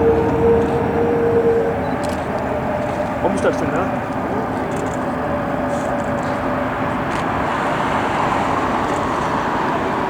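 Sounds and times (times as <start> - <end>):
jet engine rushing noise: 0.0 - 4.0.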